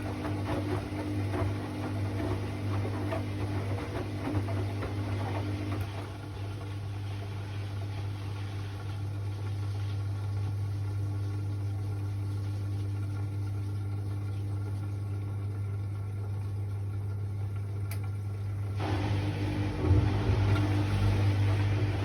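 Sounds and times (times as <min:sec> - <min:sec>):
washing machine humming: 0:00.0 - 0:22.0
washing machine tick: 0:15.2 - 0:18.7.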